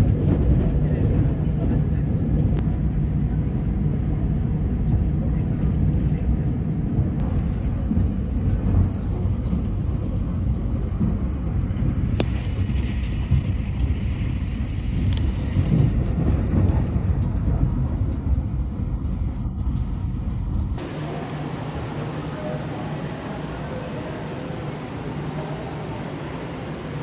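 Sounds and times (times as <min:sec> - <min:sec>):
train wheels rumbling on rails: 0:00.0 - 0:13.8, 0:20.8 - 0:27.0.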